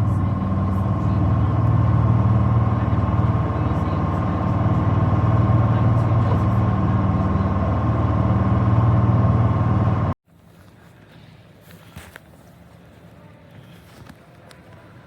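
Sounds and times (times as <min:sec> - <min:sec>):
boat engines droning: 0:00.0 - 0:10.2
steady engine whine: 0:00.0 - 0:10.2.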